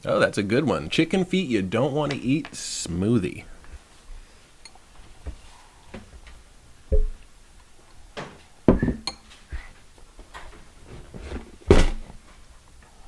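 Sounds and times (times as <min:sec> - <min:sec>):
glasses and kitchenware clinking: 0:08.8 - 0:09.4.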